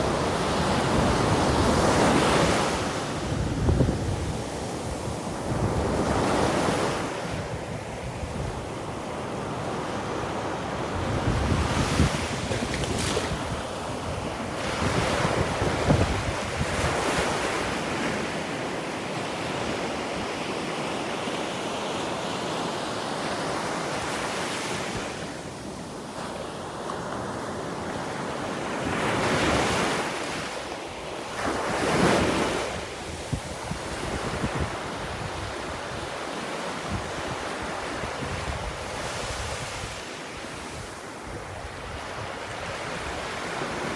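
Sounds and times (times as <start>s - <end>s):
wind buffeting the microphone: 0.0s - 9.1s, 10.6s - 17.9s, 31.7s - 36.2s, 36.8s - 43.9s
waves breaking on a beach: 0.0s - 43.9s.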